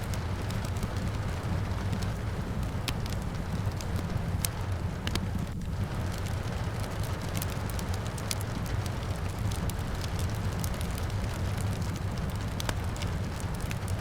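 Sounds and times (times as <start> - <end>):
rain falling: 0.0 - 14.0
wood fire crackling: 0.0 - 14.0.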